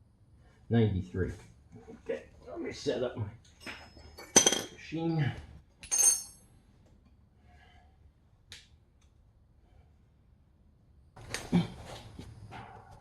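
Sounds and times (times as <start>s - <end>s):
metal tools clinking: 3.5s - 4.8s, 5.8s - 6.5s.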